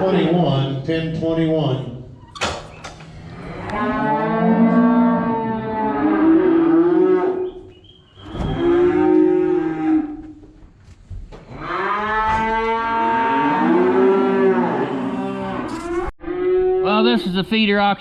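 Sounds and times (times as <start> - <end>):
cattle mooing: 3.1 - 7.6, 8.3 - 10.4, 11.5 - 17.2.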